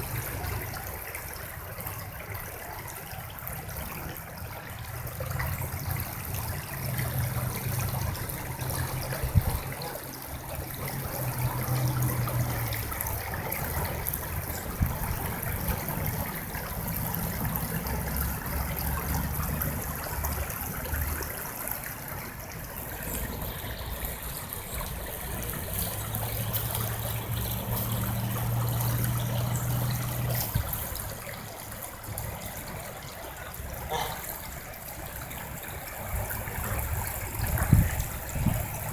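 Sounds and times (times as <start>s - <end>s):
water flowing: 0.0s - 38.9s.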